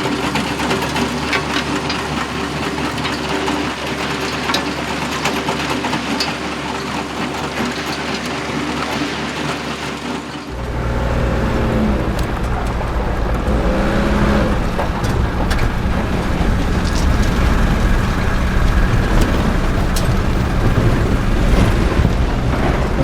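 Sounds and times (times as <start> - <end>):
construction machines rattling: 0.0 - 23.0
deep steady hum: 10.5 - 23.0.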